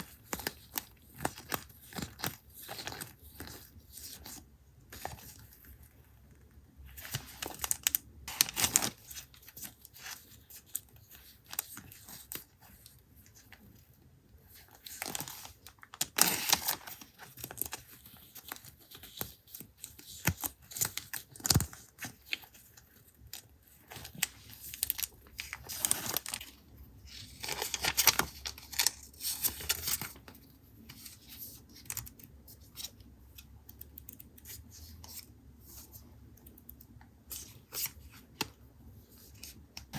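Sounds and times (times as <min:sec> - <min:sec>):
paper rustling and tearing: 0:23.9 - 0:26.5.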